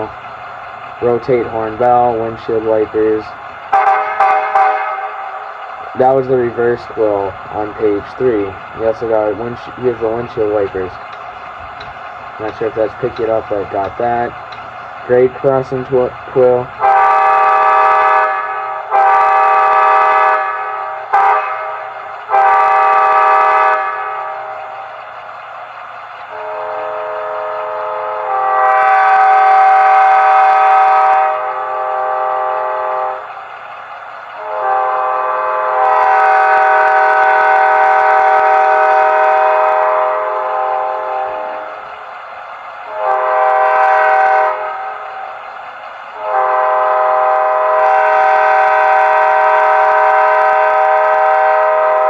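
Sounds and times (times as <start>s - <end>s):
model train diesel horn: 3.7s - 8.5s, 15.1s - 24.8s, 26.3s - 33.4s, 34.4s - 42.0s, 42.9s - 45.3s, 46.2s - 52.0s.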